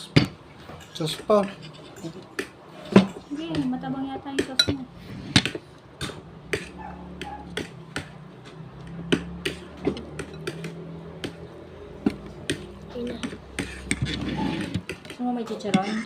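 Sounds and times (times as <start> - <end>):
cutlery tapping on a plate: 4.4 - 4.8, 5.4 - 11.4.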